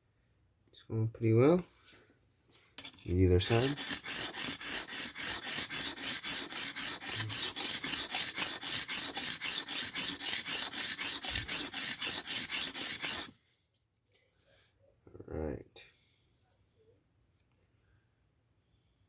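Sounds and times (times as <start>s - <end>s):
knife scraping on whetstone: 2.8s - 13.3s.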